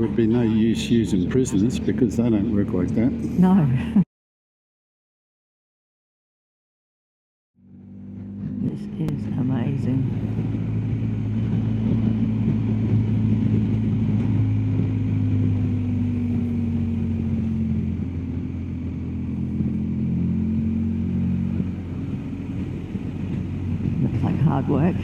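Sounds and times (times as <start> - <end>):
motorcycle engine running: 7.6 - 25.0.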